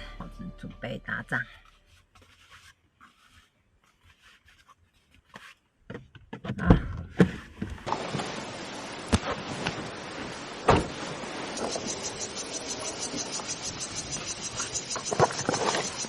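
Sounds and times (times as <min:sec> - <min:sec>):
steady outdoor hiss: 0:07.9 - 0:16.0.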